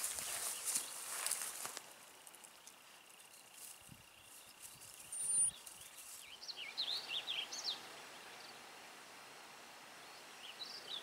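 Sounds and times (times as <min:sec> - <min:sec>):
high insect-like whine: 0:00.0 - 0:06.2
soft rustling: 0:00.0 - 0:06.3
songbird chirping: 0:00.0 - 0:11.0.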